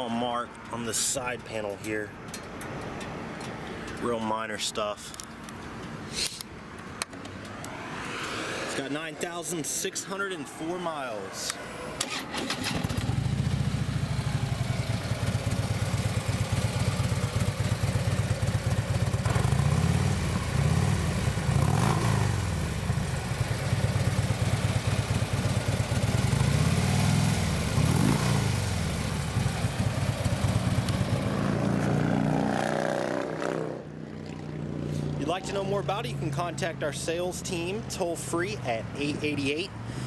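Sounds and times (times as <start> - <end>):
motorcycle engine idling and revving: 11.5 - 40.0.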